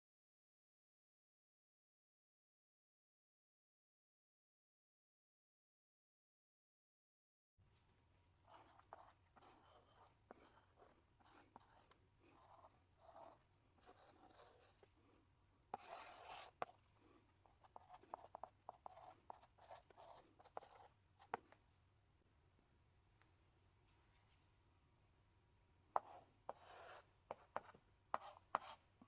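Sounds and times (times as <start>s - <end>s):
chalk scratching on blackboard: 8.5s - 14.9s, 15.7s - 16.8s, 17.5s - 21.4s, 26.0s - 28.8s.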